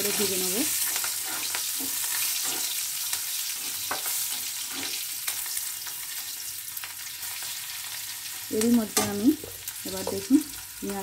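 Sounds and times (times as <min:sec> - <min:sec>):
vegetables sizzling in oil: 0:00.0 - 0:11.0
metal spatula scraping pan: 0:00.8 - 0:05.3.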